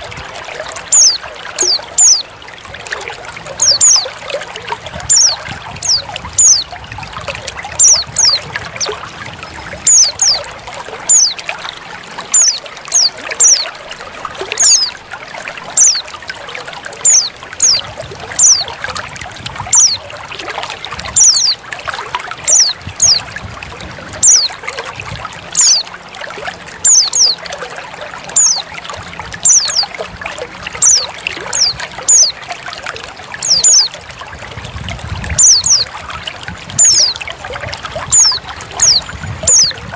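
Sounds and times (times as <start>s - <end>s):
trickling water: 0.0s - 39.9s
high bird call notes: 0.9s - 2.3s, 3.6s - 4.2s, 5.0s - 6.7s, 7.8s - 9.0s, 9.8s - 10.5s, 11.1s - 11.4s, 12.3s - 13.8s, 14.5s - 15.0s, 15.8s - 16.2s, 17.0s - 18.7s, 19.7s - 20.0s, 21.2s - 21.6s, 22.5s - 23.3s, 24.2s - 24.6s, 25.5s - 25.9s, 26.8s - 27.4s, 28.4s - 28.7s, 30.8s - 32.4s, 33.4s - 34.0s, 35.4s - 35.9s, 36.8s - 37.2s, 38.1s - 39.8s.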